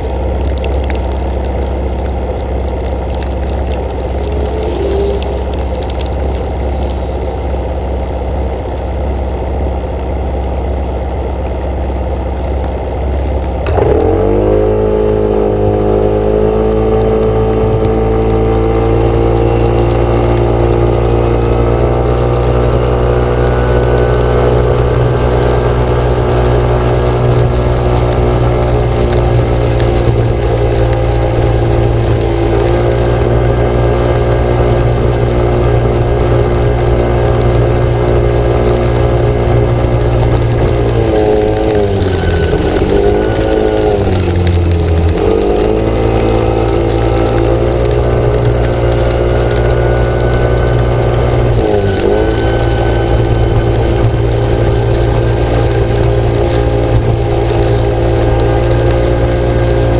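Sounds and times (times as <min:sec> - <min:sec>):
engine running: 0:00.0 - 0:59.9.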